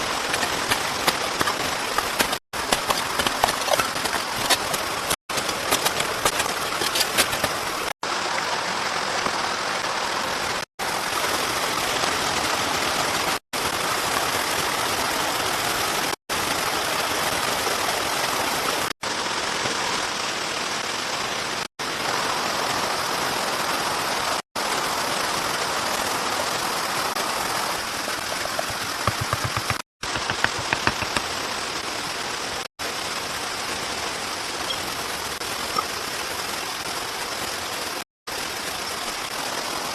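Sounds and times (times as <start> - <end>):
heavy rain falling: 0.0 - 39.9
sharp taps: 29.0 - 31.3.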